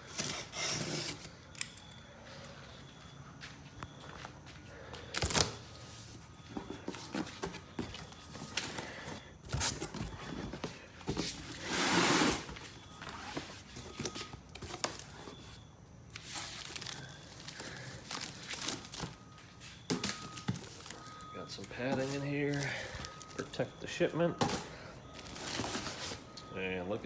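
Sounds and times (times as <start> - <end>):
tape tearing: 11.3 - 12.6.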